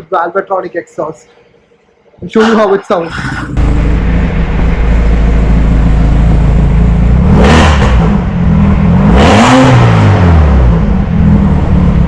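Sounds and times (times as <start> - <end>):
car engine idling: 3.1 - 12.0
engine revving: 3.3 - 12.0.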